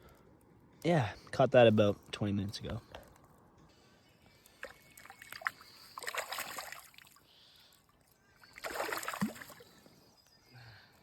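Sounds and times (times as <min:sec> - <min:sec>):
water splashing and trickling: 0:04.4 - 0:09.9.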